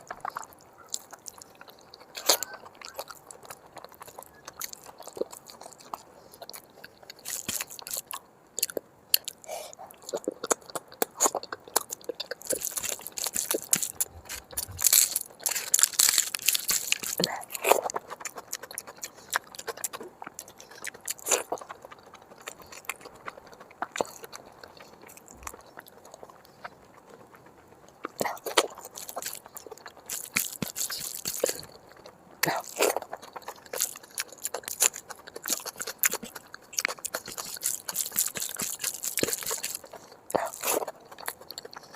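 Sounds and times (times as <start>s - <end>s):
person biting and chewing: 0.0s - 41.9s.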